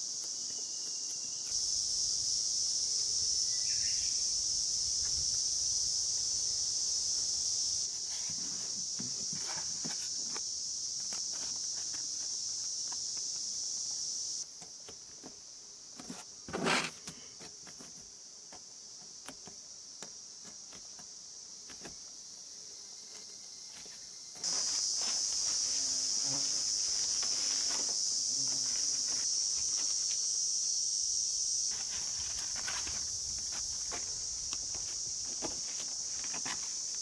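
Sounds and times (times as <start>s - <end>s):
crickets chirping: 0.0s - 37.0s
short rustle: 23.8s - 30.2s, 31.7s - 37.0s.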